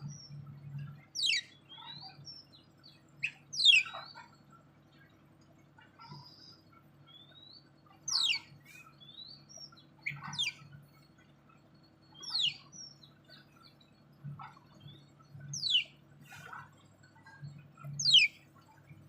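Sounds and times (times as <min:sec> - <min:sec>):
soft short bird chirps: 0:01.1 - 0:02.2, 0:03.2 - 0:04.4, 0:06.0 - 0:10.7, 0:18.0 - 0:18.4.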